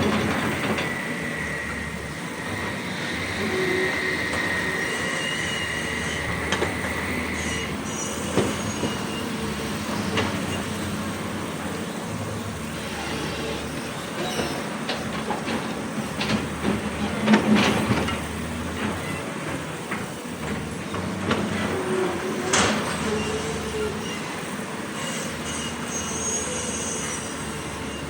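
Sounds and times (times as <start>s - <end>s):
faint high squeal: 2.6s - 10.6s, 23.0s - 28.0s.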